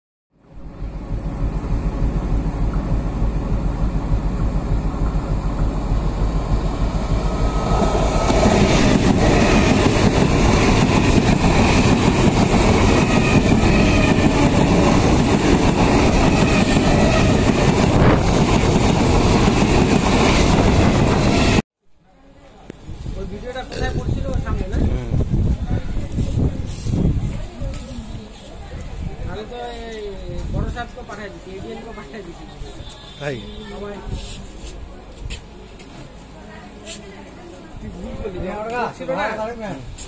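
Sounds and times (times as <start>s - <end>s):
train passing rattling on rails: 0.4s - 21.6s.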